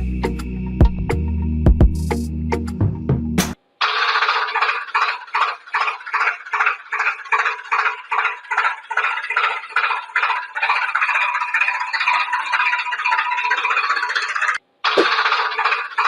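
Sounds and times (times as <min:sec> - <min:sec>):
rhythmic mechanical ticking: 0:03.8 - 0:16.0.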